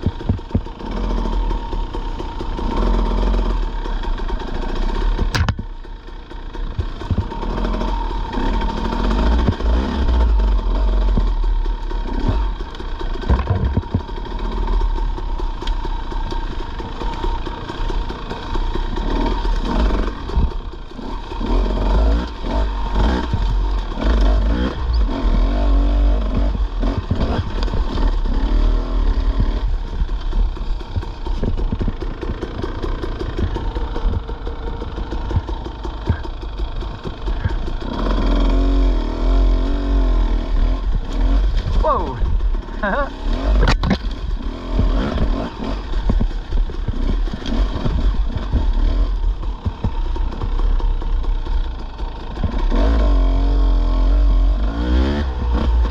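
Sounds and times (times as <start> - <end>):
knocks and clatter: 0.0 - 0.7, 5.2 - 5.8, 6.8 - 7.6, 13.2 - 14.3, 29.2 - 37.8, 43.5 - 50.9
dirt bike engine revving: 0.0 - 5.4, 6.1 - 55.9.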